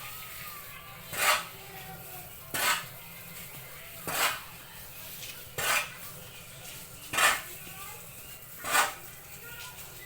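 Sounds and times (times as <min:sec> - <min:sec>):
scraping strokes in sawdust: 0:01.1 - 0:01.5, 0:02.5 - 0:02.9, 0:04.0 - 0:04.4, 0:05.2 - 0:06.0, 0:07.1 - 0:07.5, 0:08.6 - 0:09.0.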